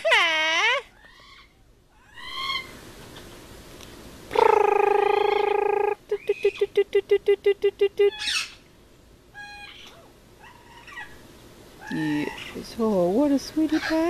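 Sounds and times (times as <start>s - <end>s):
parrot squawking: 1.0s - 2.8s, 4.3s - 6.8s, 8.0s - 8.6s, 9.3s - 11.2s.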